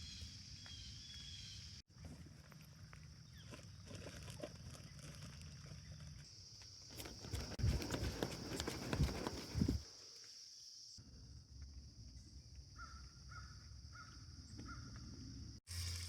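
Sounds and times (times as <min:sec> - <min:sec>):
thumps and crackles on microphone: 0:07.0 - 0:09.8.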